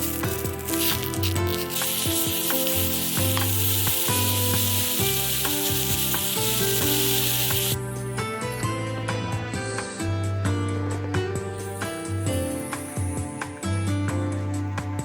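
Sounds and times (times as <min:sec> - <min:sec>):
food sizzling in a pan: 0:00.0 - 0:07.8
background music: 0:00.0 - 0:15.0.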